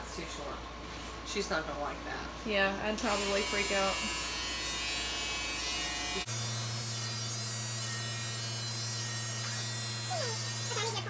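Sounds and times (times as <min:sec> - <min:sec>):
electric hair clippers buzzing: 0:03.0 - 0:11.0.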